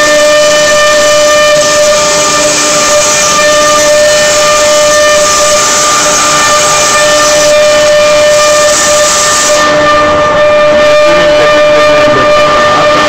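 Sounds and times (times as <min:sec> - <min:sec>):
cnc router spindle whine: 0:00.0 - 0:13.0
loud hiss: 0:00.0 - 0:13.0.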